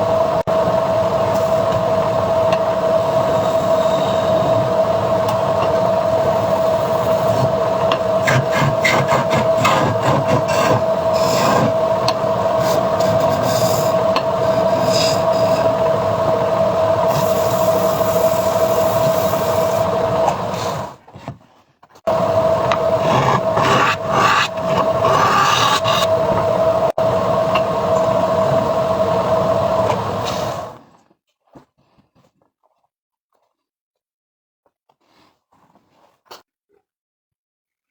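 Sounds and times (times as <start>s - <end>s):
wood lathe humming: 0.0s - 21.0s, 22.1s - 30.8s
turning tool scraping wood: 5.2s - 16.4s, 22.1s - 26.7s.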